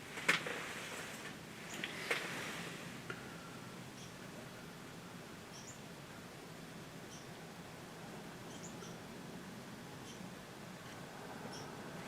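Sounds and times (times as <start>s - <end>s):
steady quiet hiss: 0.0s - 12.0s
small animal chirp: 7.1s - 7.3s.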